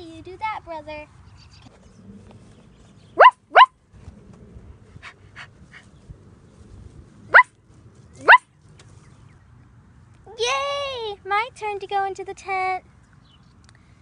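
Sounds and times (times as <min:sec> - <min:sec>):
small dog yipping: 0:03.2 - 0:03.7, 0:08.2 - 0:08.5.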